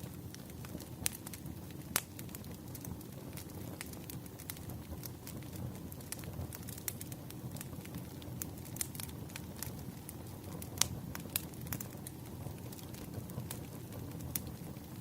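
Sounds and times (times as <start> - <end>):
sharp pops of burning logs: 0.0 - 15.0
wood fire crackling: 0.0 - 15.0.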